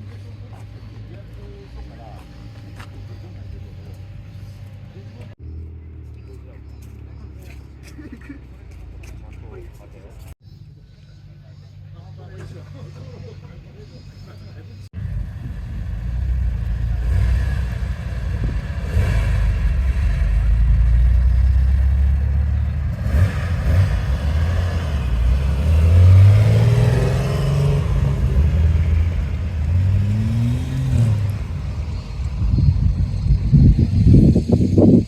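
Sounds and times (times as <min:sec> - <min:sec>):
car engine revving: 0:15.0 - 0:34.8.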